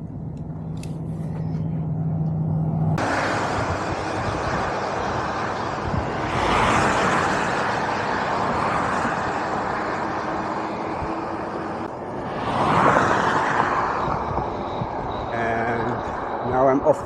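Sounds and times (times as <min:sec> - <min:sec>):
freeway traffic noise: 0:00.0 - 0:17.0.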